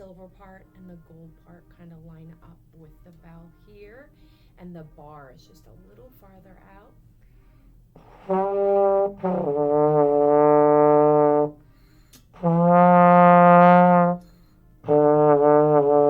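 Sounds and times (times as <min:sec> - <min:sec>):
trombone notes: 0:08.0 - 0:11.6, 0:12.3 - 0:16.0.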